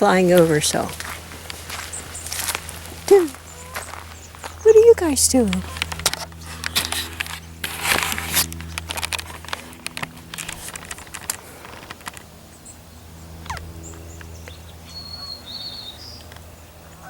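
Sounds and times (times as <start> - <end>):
crackling rustle: 0.0 - 16.6
steady low hum: 0.0 - 17.0
high bird chirps: 13.8 - 16.3.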